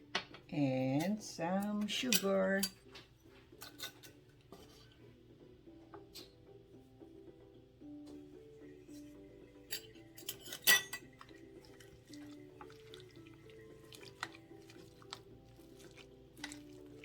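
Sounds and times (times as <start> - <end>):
soft background music: 0.0 - 17.0
utensil scraping mixing bowl: 11.0 - 17.0.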